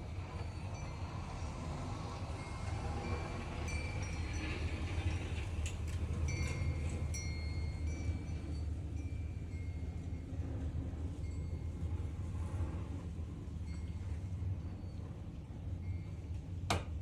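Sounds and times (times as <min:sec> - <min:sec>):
metal wind chimes tinkling: 0:02.4 - 0:10.3.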